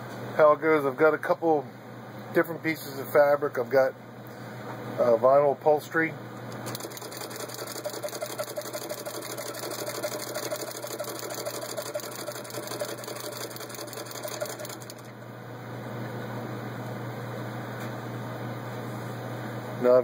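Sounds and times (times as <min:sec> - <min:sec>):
steady hum: 0:03.9 - 0:20.0
sewing machine clattering: 0:06.6 - 0:15.1.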